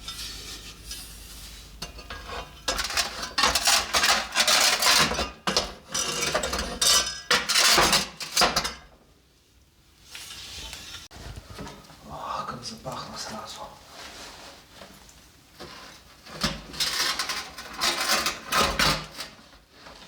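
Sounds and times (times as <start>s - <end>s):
utensil scraping cookware: 0.0s - 8.9s, 15.6s - 19.4s.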